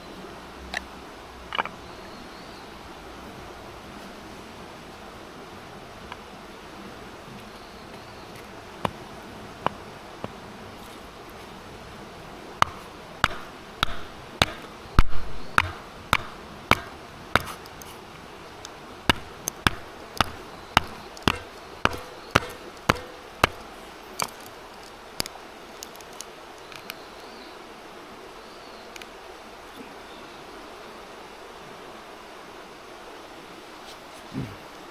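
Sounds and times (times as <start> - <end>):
heavy thud: 12.6 - 17.7, 19.1 - 23.7
sharp knocks: 12.6 - 18.0, 19.1 - 24.4.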